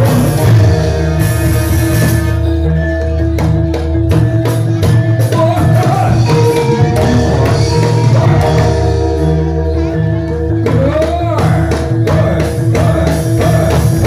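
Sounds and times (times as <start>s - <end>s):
percussion beat: 0.0s - 14.0s
sustained instrumental tones: 0.0s - 14.0s
person singing: 4.5s - 14.0s.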